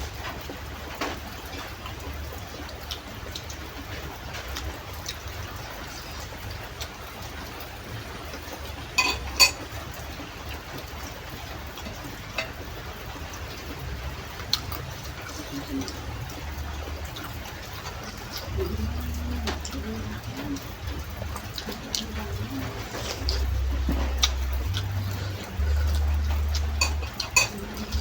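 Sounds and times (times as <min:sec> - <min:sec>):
low hum and hiss: 0:00.0 - 0:28.0
spoon clinking on soup bowl: 0:09.0 - 0:09.6, 0:26.8 - 0:27.6.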